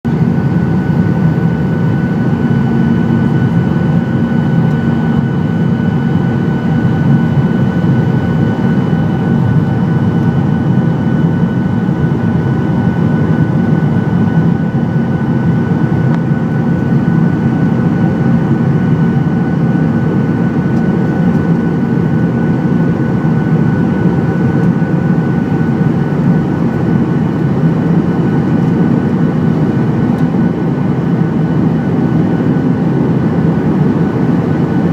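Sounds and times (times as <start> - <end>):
airplane engine and airflow drone: 0.0 - 34.9
constant whine: 0.0 - 34.9.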